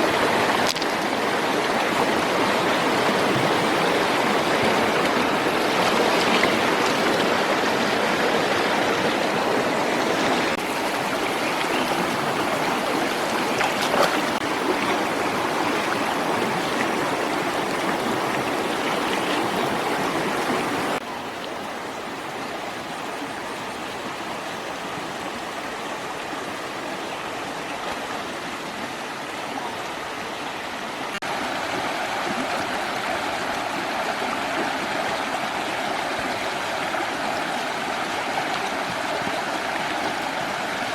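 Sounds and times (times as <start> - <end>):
running water rushing: 0.0 - 40.9.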